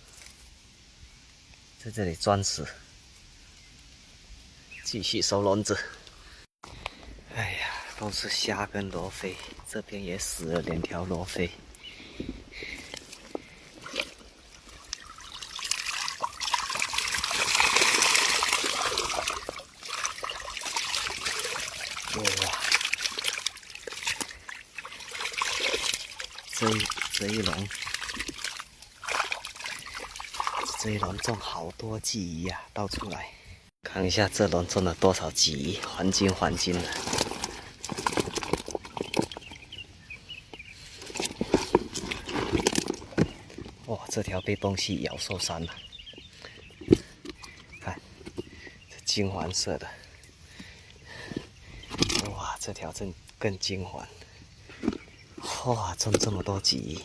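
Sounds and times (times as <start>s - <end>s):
water trickling and splashing: 8.0s - 45.6s
fish flopping and slapping: 12.2s - 31.4s, 36.0s - 39.7s, 40.5s - 43.9s.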